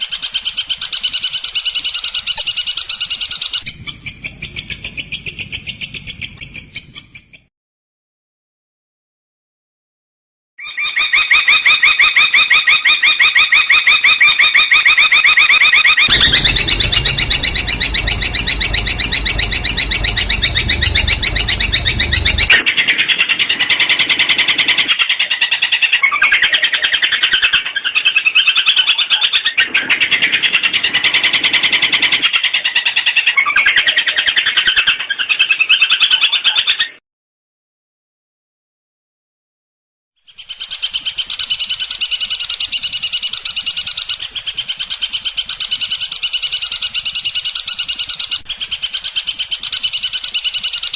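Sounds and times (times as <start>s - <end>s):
low rumble: 16.1s - 22.6s
shrike singing: 16.1s - 22.6s.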